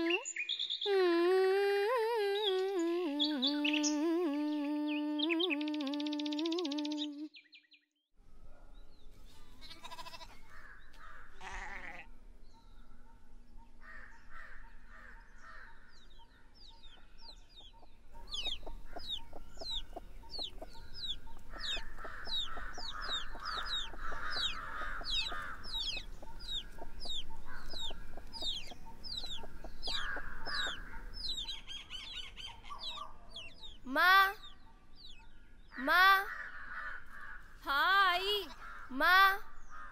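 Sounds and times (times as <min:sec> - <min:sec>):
small bird chirping: 0:12.4 - 0:35.9
chickens clucking: 0:16.1 - 0:33.8.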